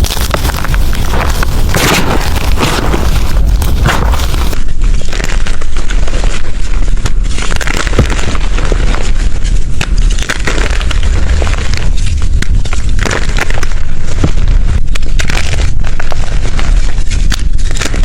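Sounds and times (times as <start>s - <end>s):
low rumble: 0.0s - 4.9s
chalk being crushed by hand: 0.0s - 18.0s.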